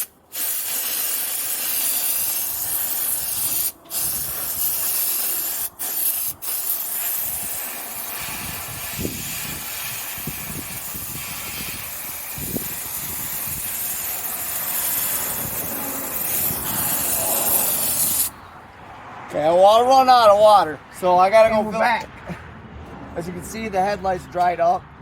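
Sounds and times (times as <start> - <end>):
steamer hissing: 0.0 - 18.4.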